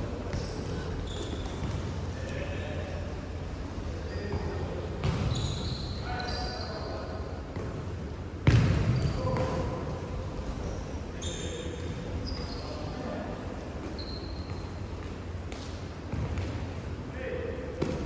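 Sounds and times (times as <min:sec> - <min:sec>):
murmur of players' voices: 0:00.0 - 0:18.0
shoe squeaks on court: 0:00.3 - 0:02.3, 0:05.0 - 0:06.8, 0:10.6 - 0:13.0, 0:13.8 - 0:14.8
ball thump in hall: 0:04.3 - 0:05.5, 0:08.4 - 0:09.7, 0:17.8 - 0:18.0.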